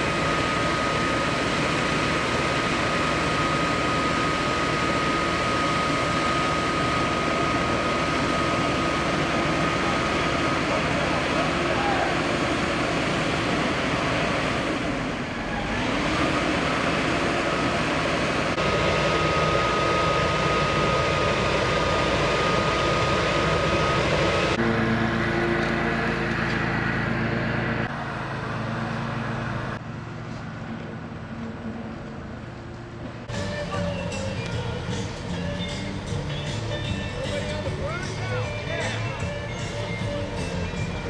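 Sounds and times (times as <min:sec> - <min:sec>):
thin steady whine: 0:00.0 - 0:15.2
diesel engines running: 0:00.0 - 0:41.0.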